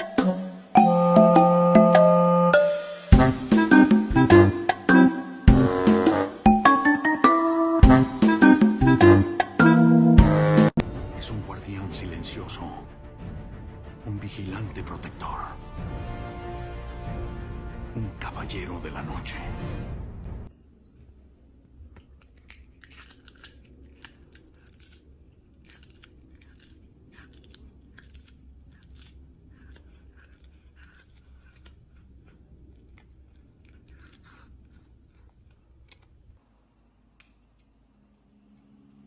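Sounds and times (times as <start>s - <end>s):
crunchy chewing: 21.7s - 36.4s.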